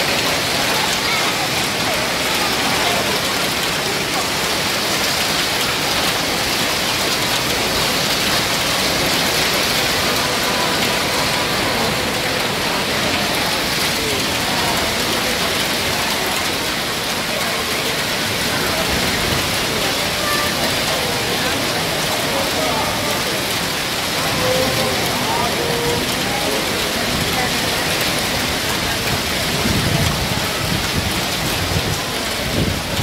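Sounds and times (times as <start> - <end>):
hail and rain drumming: 0.0 - 33.0.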